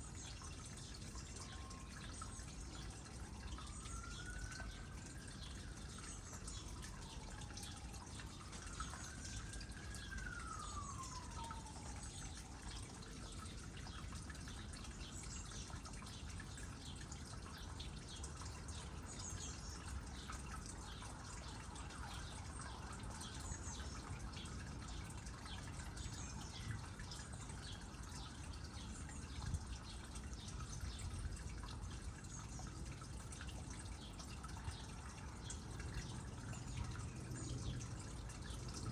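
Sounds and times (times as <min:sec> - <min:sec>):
water trickling into pond: 0:00.0 - 0:38.9
distant siren: 0:00.1 - 0:16.0, 0:18.2 - 0:31.8.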